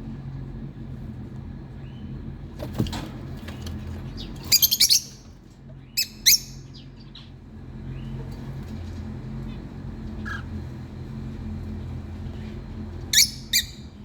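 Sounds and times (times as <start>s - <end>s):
steady low hum: 0.0s - 14.0s
sharp high bird calls: 13.1s - 13.8s.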